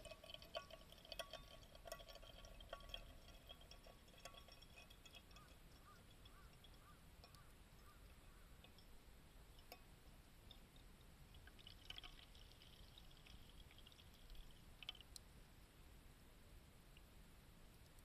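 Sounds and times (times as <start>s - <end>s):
liquid pouring: 0.0s - 8.9s, 10.4s - 15.2s.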